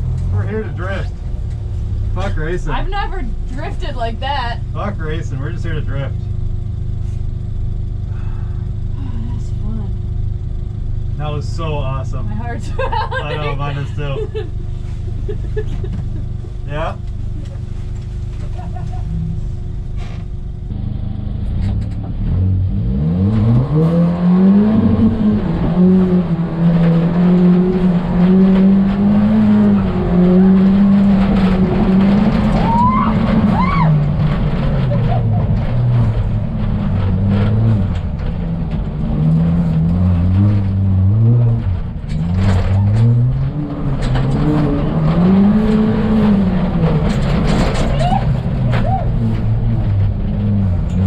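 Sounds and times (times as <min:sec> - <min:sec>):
rally car engine revving: 0:00.0 - 0:51.0
rising squeal: 0:23.1 - 0:37.8.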